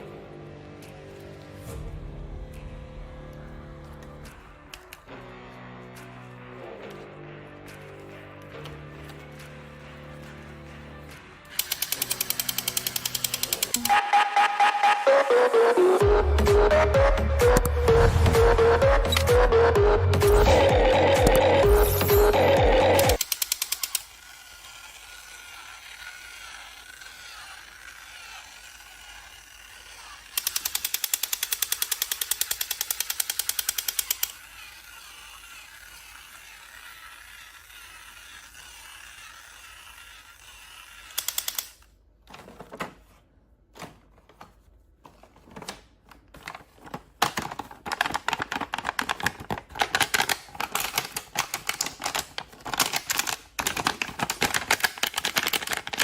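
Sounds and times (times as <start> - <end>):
rapid mechanical clicking: 11.5 - 14.0, 22.9 - 41.9.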